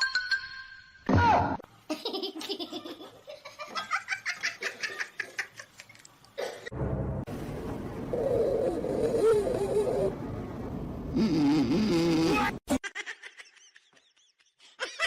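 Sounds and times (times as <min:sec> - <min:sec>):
person laughing: 0:12.7 - 0:15.0.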